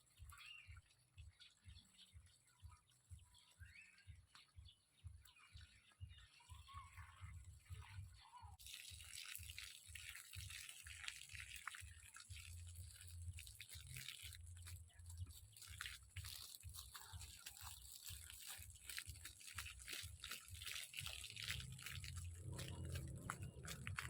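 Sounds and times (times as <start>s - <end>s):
water splashing on ground: 8.6s - 24.0s.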